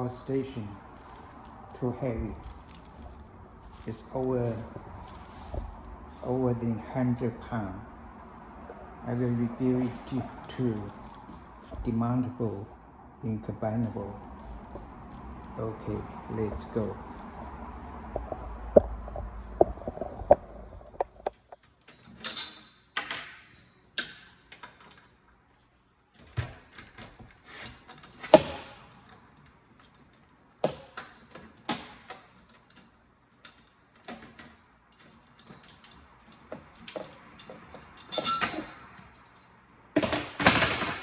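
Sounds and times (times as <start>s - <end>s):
tools clicking and knocking: 0.6s - 5.8s, 26.3s - 39.4s.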